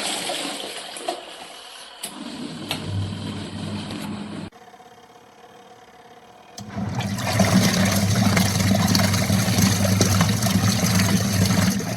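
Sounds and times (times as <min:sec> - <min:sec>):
water churning in tub: 0:00.0 - 0:03.9, 0:06.6 - 0:11.9
washing machine motor hum: 0:00.0 - 0:11.9.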